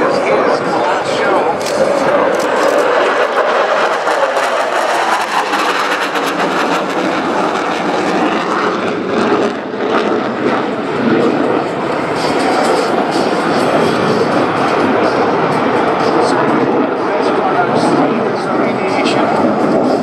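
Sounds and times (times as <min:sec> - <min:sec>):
fighter jet roaring: 0:00.0 - 0:20.0.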